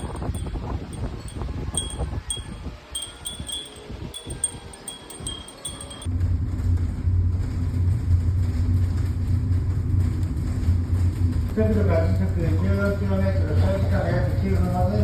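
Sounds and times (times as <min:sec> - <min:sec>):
metal wind chimes tinkling: 0:00.0 - 0:06.1
low rumbling drone: 0:00.0 - 0:12.4
low wind rumble: 0:00.0 - 0:15.0.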